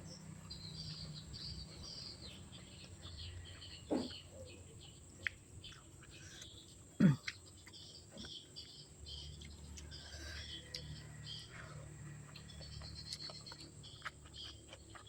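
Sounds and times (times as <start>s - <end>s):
chewing with wet mouth clicks: 5.1s - 15.0s.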